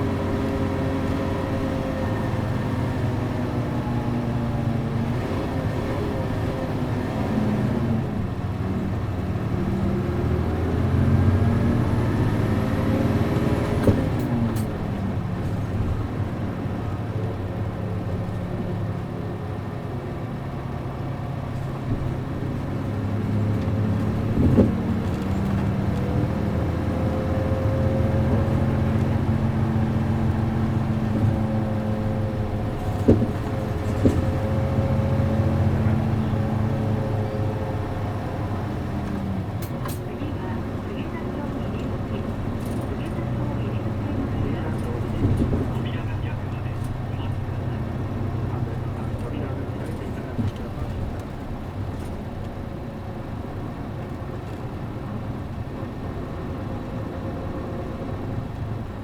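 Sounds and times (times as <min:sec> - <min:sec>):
bus diesel engine accelerating: 0:00.0 - 0:59.0
knocks and clicks from bus: 0:00.0 - 0:59.0.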